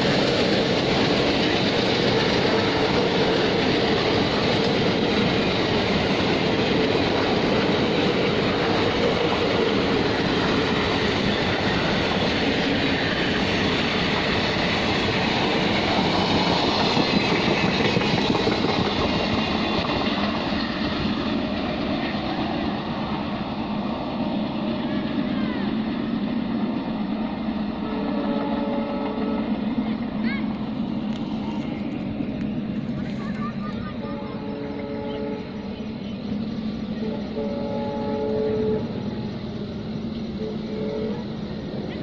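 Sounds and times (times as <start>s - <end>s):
train wheels rumbling on rails: 0.0s - 42.0s.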